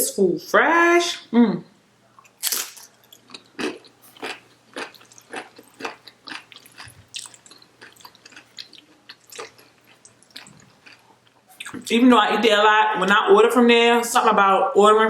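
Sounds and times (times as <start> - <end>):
person chewing food: 2.1 - 11.9.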